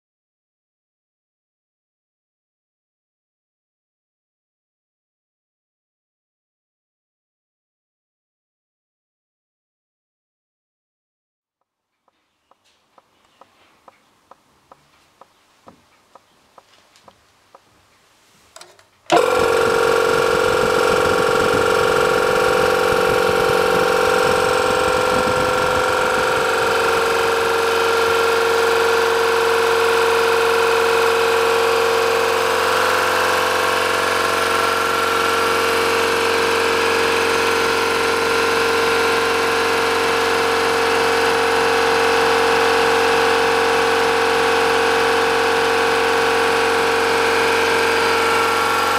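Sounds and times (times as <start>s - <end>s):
faint ticks: 11.9s - 18.8s
air compressor running: 19.1s - 48.9s.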